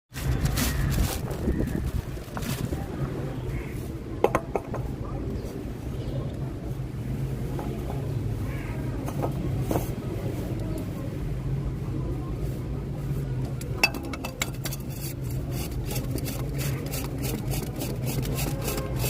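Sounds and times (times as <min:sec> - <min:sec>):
metal tools clinking and tapping: 0:13.7 - 0:15.2.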